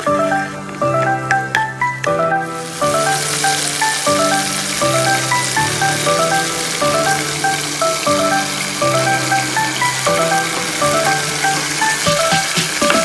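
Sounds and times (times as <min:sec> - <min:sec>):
background music melody: 0:00.0 - 0:13.0
food sizzling in a frying pan: 0:02.6 - 0:13.0.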